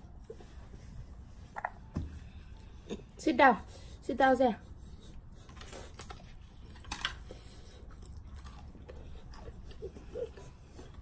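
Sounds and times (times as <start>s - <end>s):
chewing: 5.4s - 11.0s.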